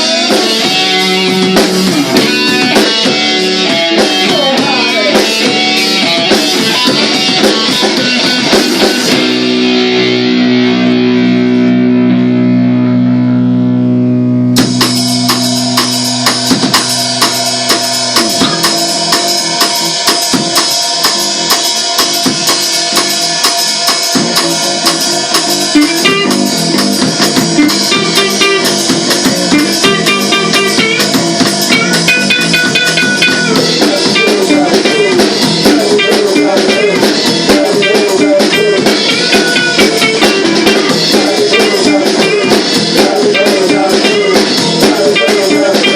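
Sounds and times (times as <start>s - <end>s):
rock band playing: 0.0s - 45.9s
held guitar chord ringing: 9.1s - 16.2s, 27.6s - 33.8s.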